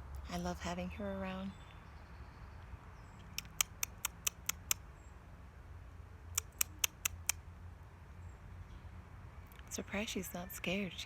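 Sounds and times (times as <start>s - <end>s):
bird pecking at seed: 3.2s - 4.8s, 6.4s - 7.4s.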